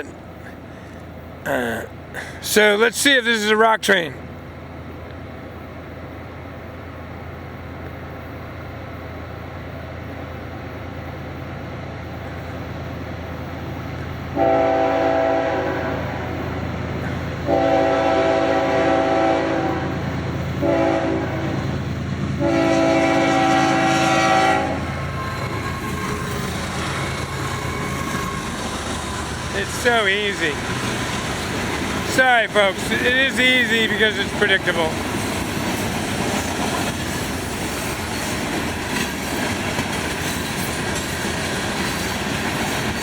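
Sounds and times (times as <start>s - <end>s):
low rumble of approaching train: 0.0s - 43.0s
train horn blasts: 14.3s - 16.5s, 17.2s - 21.8s, 22.4s - 25.6s.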